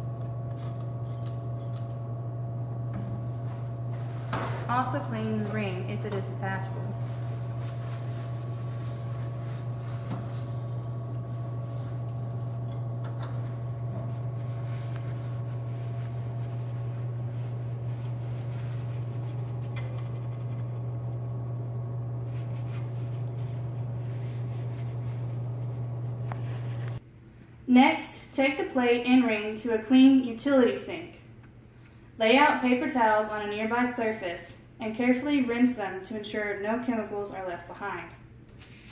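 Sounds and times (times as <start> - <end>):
steady low hum: 0.0 - 29.2
paper towel scratching and clicks: 3.4 - 12.5, 13.3 - 20.9, 22.2 - 27.0.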